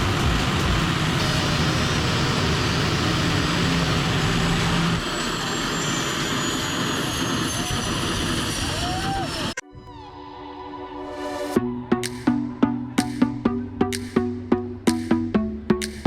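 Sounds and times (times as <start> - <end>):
loud car engine noise: 0.0 - 9.6
thin high whine: 0.0 - 9.6.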